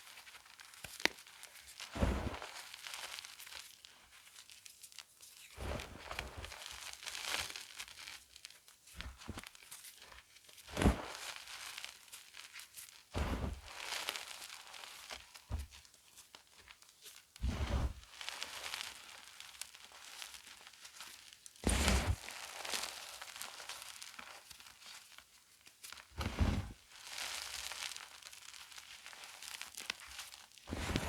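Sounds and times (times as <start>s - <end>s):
chalk crunching by hand: 10.7s - 12.2s, 17.4s - 25.1s, 26.2s - 31.0s.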